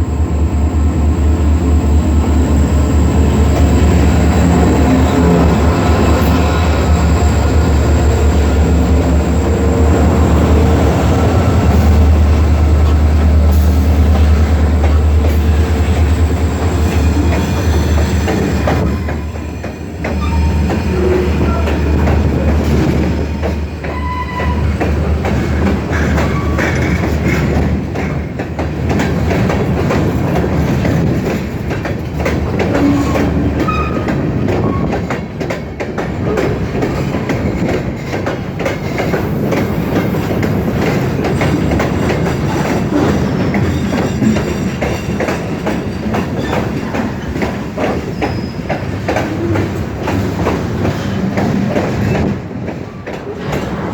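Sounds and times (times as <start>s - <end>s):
train wheels clicking over rail joints: 2.2s - 53.9s
wheel squeals: 48.0s - 48.7s.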